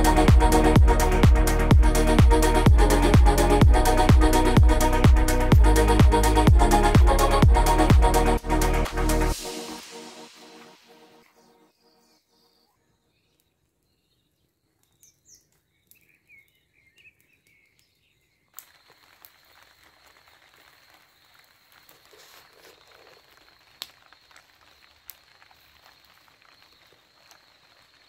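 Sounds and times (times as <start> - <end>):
loud hiss: 7.2 - 11.2
bird chirps: 11.2 - 19.6.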